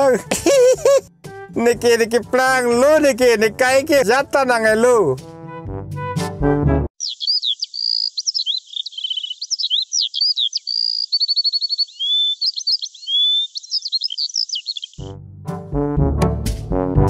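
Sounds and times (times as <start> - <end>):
birds singing: 7.0 - 15.1.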